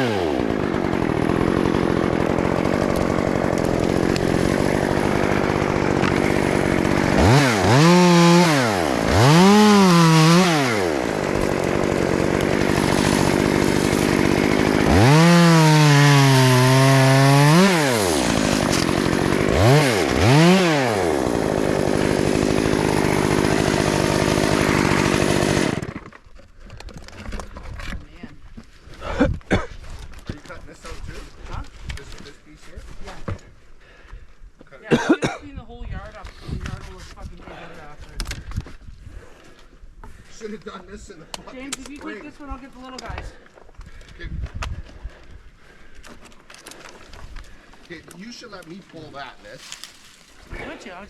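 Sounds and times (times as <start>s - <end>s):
chainsaw idling and revving: 0.0s - 26.4s.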